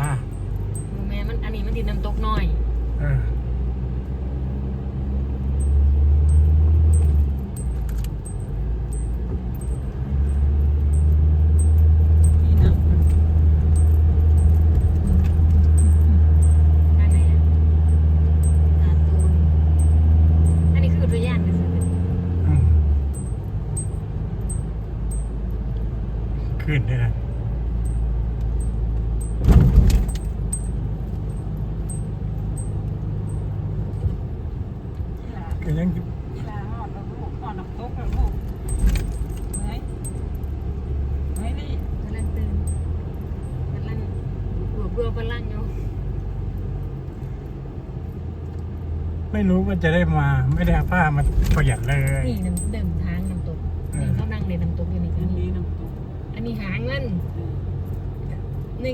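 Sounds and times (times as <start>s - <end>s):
car engine and road rumble: 0.0s - 58.9s
clattering rattle: 28.6s - 33.4s, 38.0s - 43.6s.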